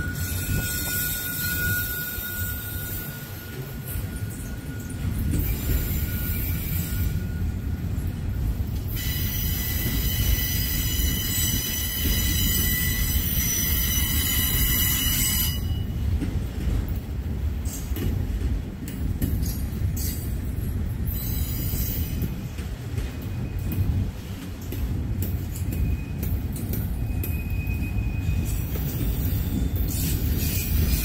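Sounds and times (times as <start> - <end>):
high-pitched wheel squeal: 0.0 - 7.5
wheels rumbling on rail: 0.0 - 31.0.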